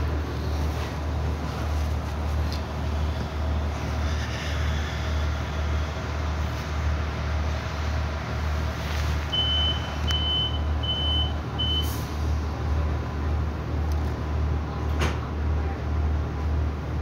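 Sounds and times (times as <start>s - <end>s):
diesel railcar idling hum: 0.0s - 17.0s
short high door beeps: 9.4s - 12.0s.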